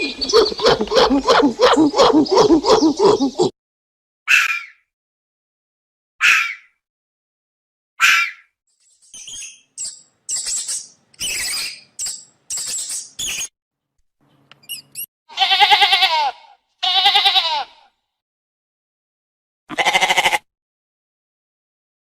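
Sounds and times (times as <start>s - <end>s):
short high squeaky calls: 0.0s - 3.5s
sheep bleating: 15.3s - 17.9s, 19.7s - 20.5s.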